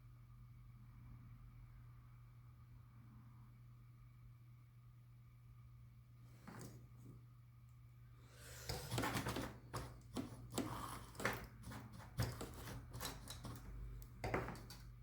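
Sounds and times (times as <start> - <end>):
small tools clicking and scraping: 8.4 - 15.0.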